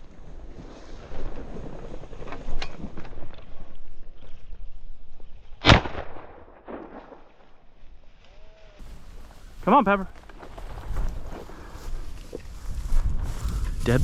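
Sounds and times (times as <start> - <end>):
shotgun shot: 5.6 - 7.5
rustling through brush: 7.2 - 14.0.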